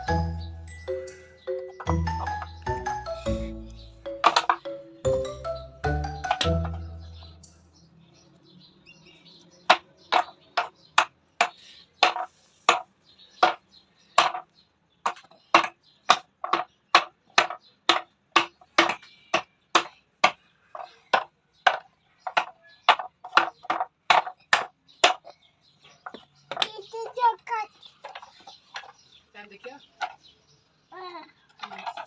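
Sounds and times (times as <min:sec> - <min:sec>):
ringing chime: 0:00.0 - 0:07.7.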